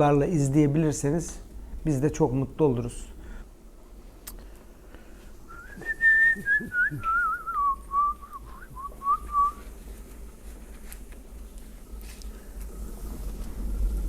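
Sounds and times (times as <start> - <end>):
person whistling a tune: 5.5 - 9.6.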